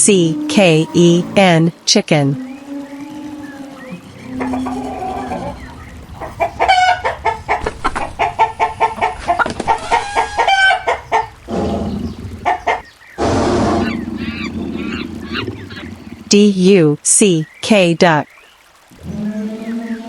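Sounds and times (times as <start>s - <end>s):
chickens clucking: 4.0s - 12.9s.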